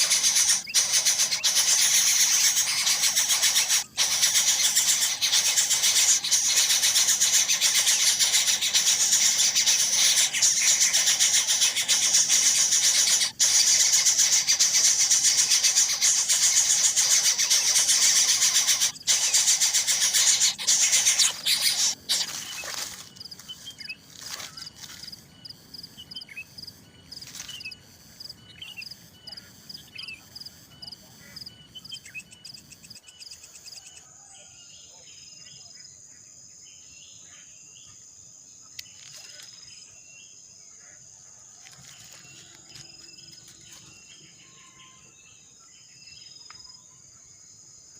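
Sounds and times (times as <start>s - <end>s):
high-pitched insect drone: 0.0s - 23.6s
nestling birds begging: 0.0s - 32.8s.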